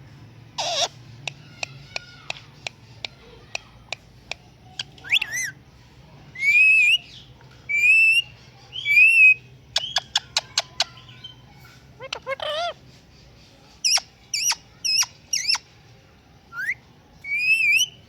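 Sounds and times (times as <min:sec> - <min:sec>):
parrot whistling: 0:16.5 - 0:18.0.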